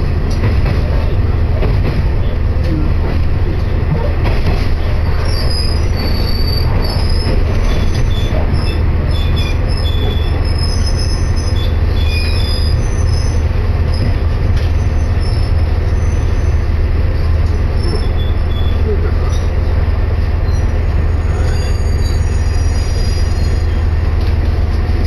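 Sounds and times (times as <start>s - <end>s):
train rumbling: 0.0s - 25.0s
high wheel squeals: 5.1s - 14.1s, 17.7s - 19.5s, 20.4s - 23.9s.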